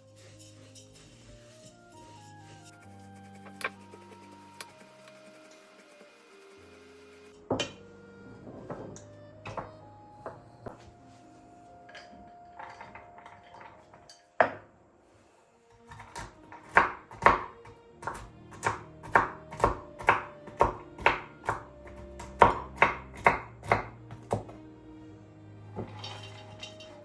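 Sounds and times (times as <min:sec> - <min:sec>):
soft background music: 0:00.0 - 0:27.0
knife chopping on cutting board: 0:15.9 - 0:24.6.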